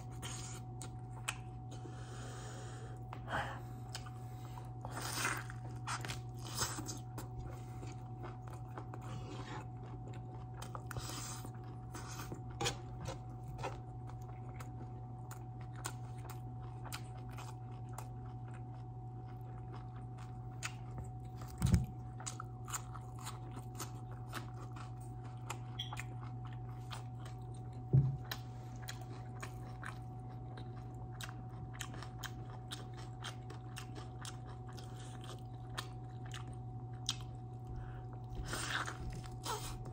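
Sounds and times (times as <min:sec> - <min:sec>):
steady low hum: 0:00.0 - 0:39.9
chewing and biting food: 0:03.8 - 0:39.9.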